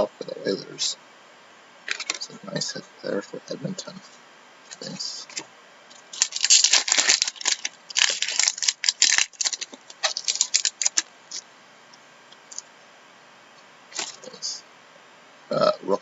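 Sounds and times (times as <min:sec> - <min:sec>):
trading cards clicking and rustling: 0:01.9 - 0:02.3, 0:04.7 - 0:11.4
wrappers rustling: 0:06.1 - 0:11.4, 0:13.9 - 0:14.3.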